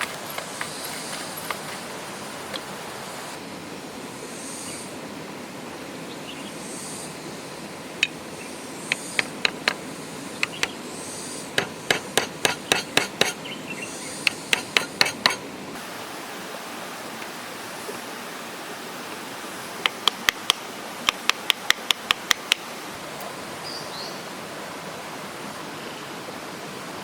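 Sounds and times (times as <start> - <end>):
steady background hiss: 0.0 - 27.0
hammer tapping on wood: 8.9 - 9.8, 10.4 - 10.8, 11.6 - 13.4, 14.3 - 15.4.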